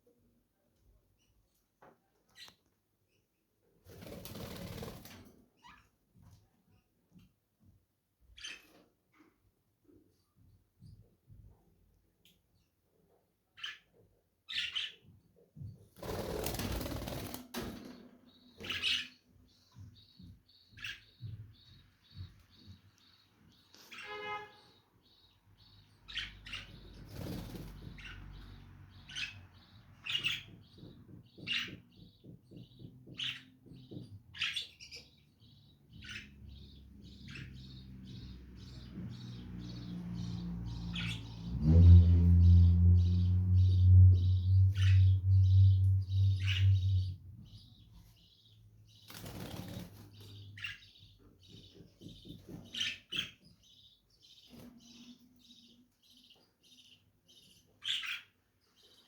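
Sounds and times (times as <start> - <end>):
wings fluttering: 3.9 - 5.3, 16.0 - 17.9, 27.0 - 28.2, 49.1 - 50.2
birds chirping: 16.0 - 59.0
loud low hum: 39.8 - 47.5.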